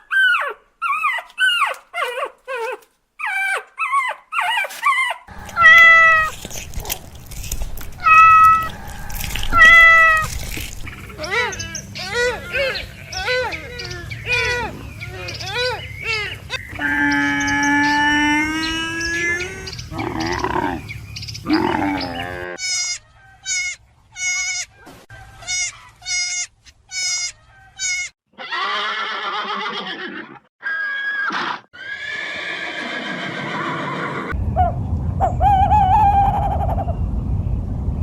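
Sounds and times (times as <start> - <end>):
animal calls: 0.0 - 26.0.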